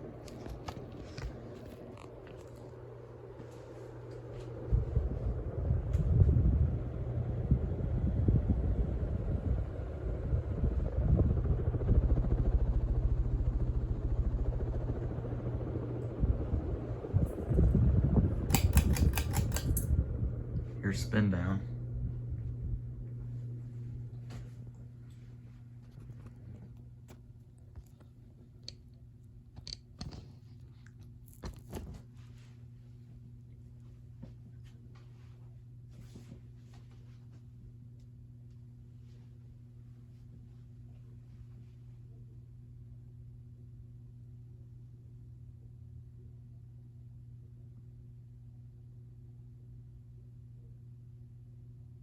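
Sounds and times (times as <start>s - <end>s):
air pulsing from fan blades: 0.0s - 26.8s
ceiling fan motor humming: 0.0s - 52.0s.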